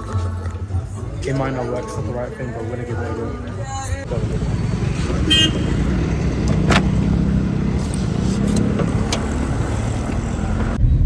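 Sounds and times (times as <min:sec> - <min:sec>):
road traffic rumble: 0:03.6 - 0:11.0.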